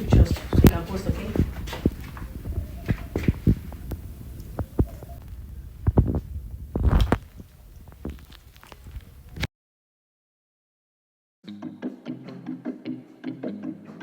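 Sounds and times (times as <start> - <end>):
microphone handling thumps: 0.0 - 9.5
wind buffeting microphone: 0.0 - 9.5.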